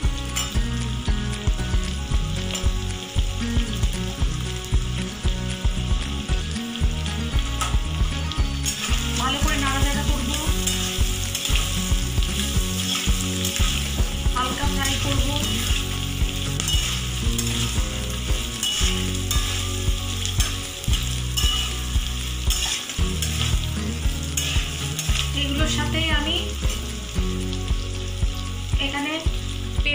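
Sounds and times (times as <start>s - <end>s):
food sizzling in hot oil: 0.0s - 29.9s
metal spatula scraping a pan: 8.6s - 9.5s, 10.2s - 14.0s, 14.9s - 25.4s.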